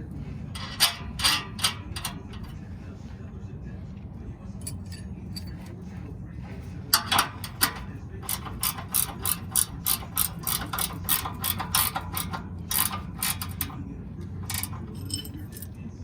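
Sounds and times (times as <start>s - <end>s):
ratchet wrench clicking: 0.6s - 2.6s, 6.9s - 15.7s.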